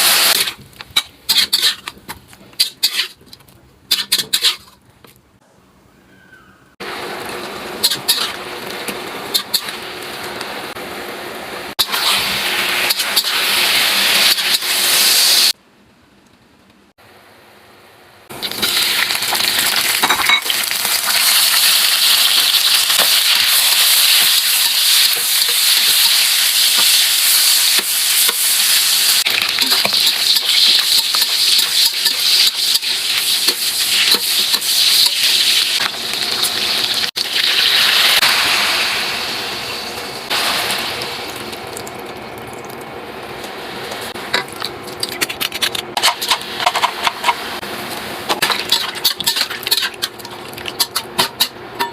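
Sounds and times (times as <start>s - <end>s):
food sizzling in hot pan: 0.0s - 0.6s, 11.8s - 15.6s, 18.3s - 41.5s.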